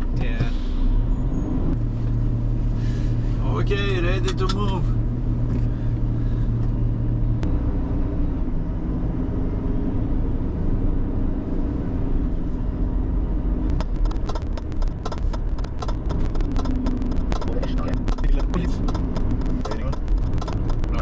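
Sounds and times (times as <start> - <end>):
truck diesel engine: 0.0 - 21.0
rapid clatter of ticks: 13.7 - 21.0
sharp click: 13.7 - 21.0.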